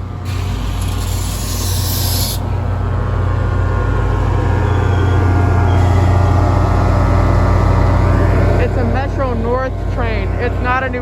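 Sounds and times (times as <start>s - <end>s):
diesel train engine drone: 0.0s - 11.0s
high hiss: 0.3s - 2.5s.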